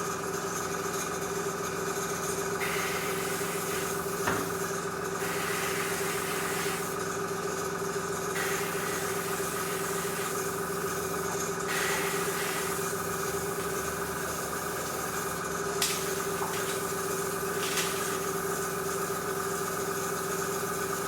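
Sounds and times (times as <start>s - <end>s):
compressor humming: 2.3s - 21.0s
airbrush hissing: 2.6s - 4.6s, 5.2s - 7.0s, 8.4s - 10.9s, 11.7s - 18.4s.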